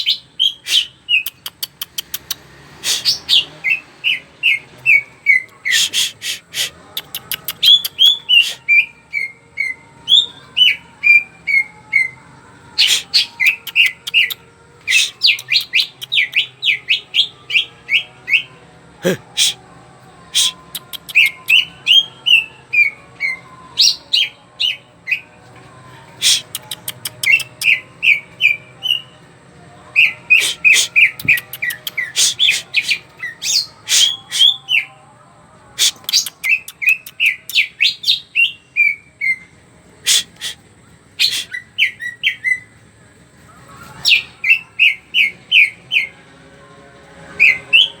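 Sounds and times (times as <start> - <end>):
sharp high bird chips: 5.3 - 8.7, 20.3 - 21.7, 26.2 - 27.8, 30.3 - 34.6
bird singing whistled notes: 41.2 - 42.7.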